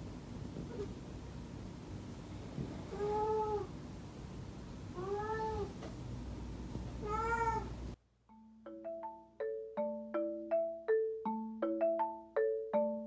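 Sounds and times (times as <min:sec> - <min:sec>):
cat meowing: 0:02.9 - 0:03.7, 0:05.0 - 0:05.8, 0:07.0 - 0:07.8.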